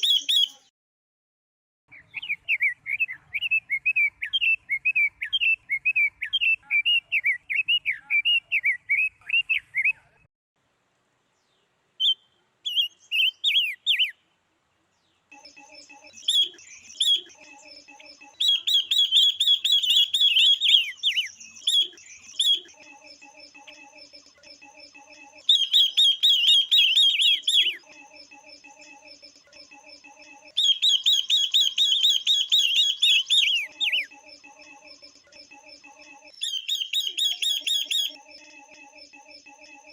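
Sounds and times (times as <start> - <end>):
rapid high bird chirping: 0.0 - 0.7, 12.0 - 14.2, 15.3 - 39.9
soft low repeating bird calls: 0.0 - 0.7, 1.9 - 10.2, 11.4 - 39.9.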